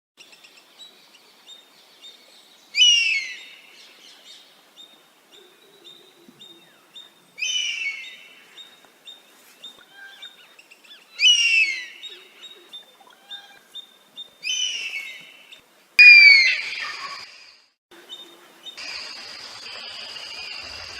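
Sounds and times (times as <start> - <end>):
bird whistled calls falling: 16.0 - 17.5.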